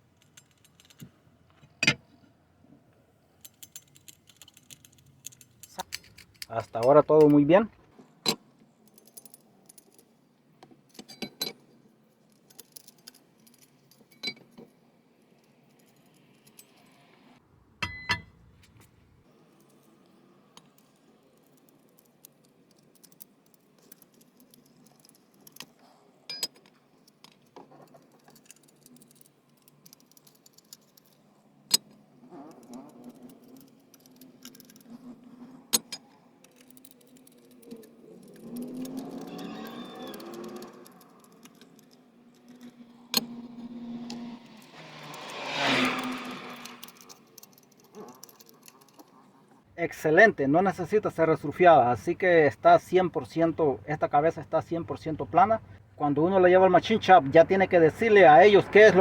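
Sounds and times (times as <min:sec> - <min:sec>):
metal tools clicking on metal: 0:00.1 - 0:02.2, 0:03.4 - 0:17.1, 0:19.5 - 0:49.2.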